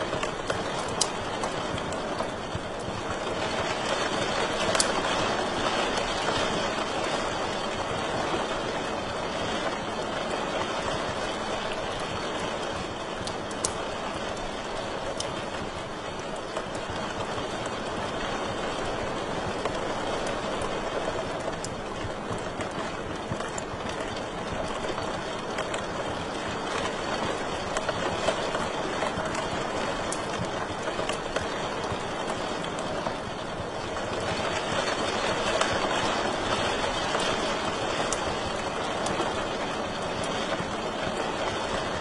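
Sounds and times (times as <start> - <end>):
hiss of flames: 0.0 - 8.0, 8.9 - 18.2
fire crackles and pops: 0.0 - 42.0.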